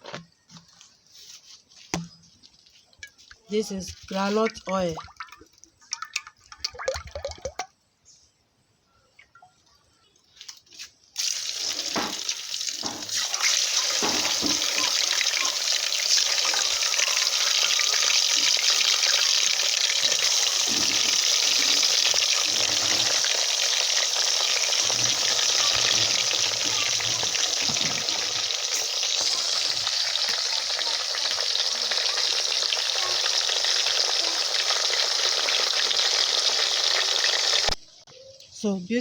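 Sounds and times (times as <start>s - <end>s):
meat sizzling in oil: 11.2s - 37.8s.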